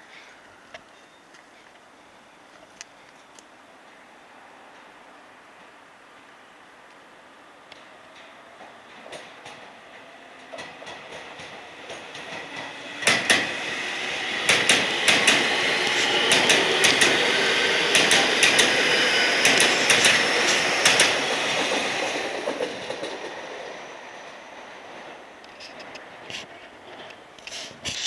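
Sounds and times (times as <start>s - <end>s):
train wheels clacking over rail joints: 7.7s - 28.0s.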